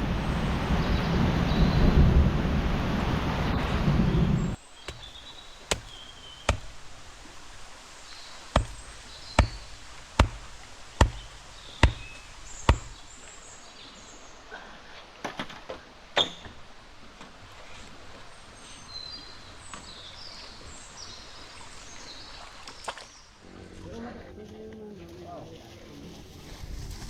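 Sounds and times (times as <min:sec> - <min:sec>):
sharp knocks or chops: 0:04.9 - 0:07.8, 0:08.5 - 0:13.2.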